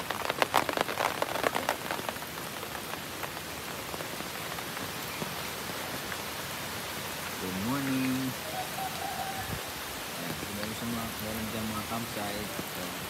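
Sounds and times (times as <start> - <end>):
sharp raindrop hits: 0.0 - 6.4
rain falling: 0.0 - 13.0.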